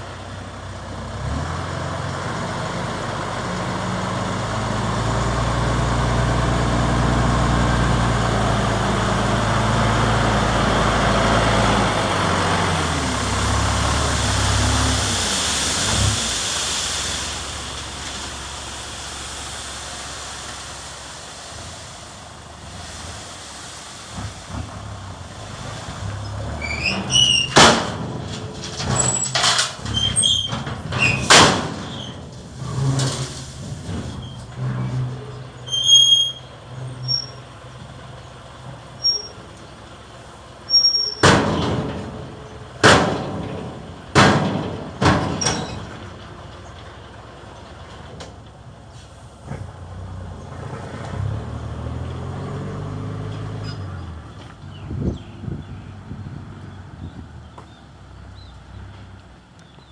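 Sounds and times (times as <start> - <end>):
truck engine running low: 0.0 - 59.9
high squeaks: 26.3 - 27.6, 28.8 - 32.2, 34.1 - 37.5, 39.0 - 39.4, 40.7 - 41.3
metallic clanks: 26.8 - 35.0.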